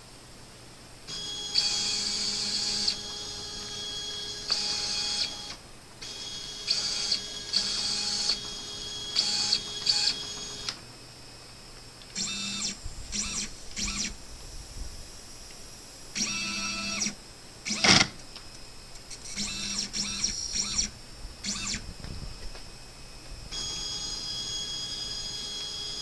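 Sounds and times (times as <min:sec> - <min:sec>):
stepper motors whining: 0:01.1 - 0:10.8, 0:12.1 - 0:14.2, 0:16.1 - 0:18.2, 0:19.0 - 0:22.6.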